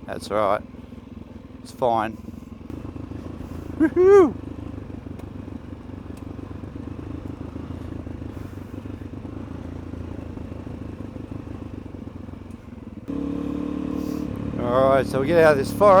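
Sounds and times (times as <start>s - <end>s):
motorcycle engine at low revs: 0.0s - 16.0s.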